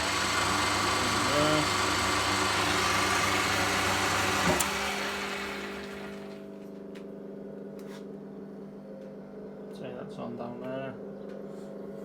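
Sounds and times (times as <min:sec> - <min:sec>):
lathe running: 0:00.0 - 0:06.6
electrical hum: 0:00.0 - 0:06.7.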